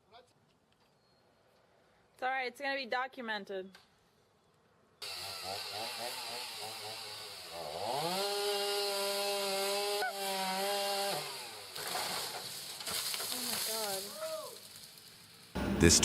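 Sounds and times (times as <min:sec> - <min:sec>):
chainsaw engine revving: 0:05.0 - 0:13.6.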